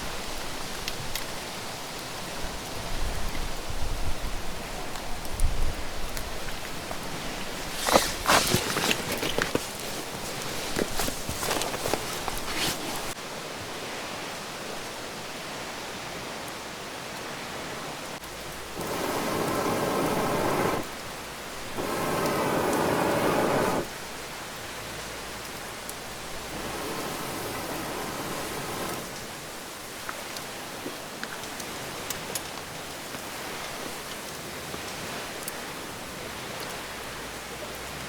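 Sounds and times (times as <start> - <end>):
steady hiss: 6.6 - 13.2, 18.2 - 30.5.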